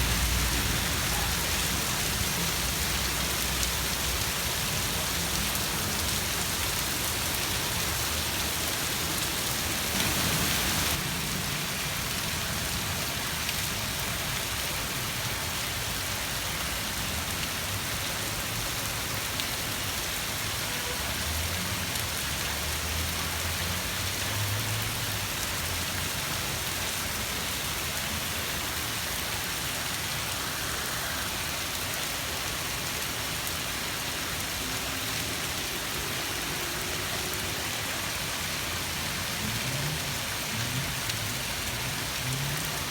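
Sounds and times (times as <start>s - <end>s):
rain hissing: 0.0s - 16.0s, 28.0s - 42.9s.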